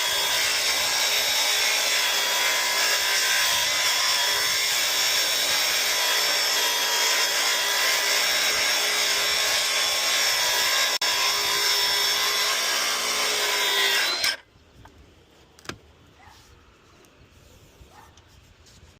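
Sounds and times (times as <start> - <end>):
power tool cutting wood: 0.0 - 14.4.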